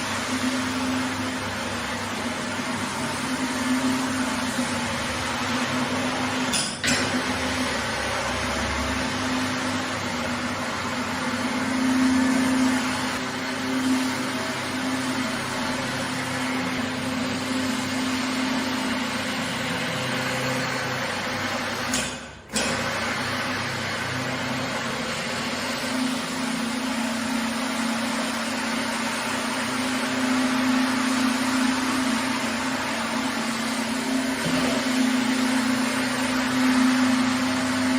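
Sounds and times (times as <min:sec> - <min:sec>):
carpet cleaning machine hissing: 0:00.0 - 0:06.5, 0:07.1 - 0:21.9, 0:22.5 - 0:37.9.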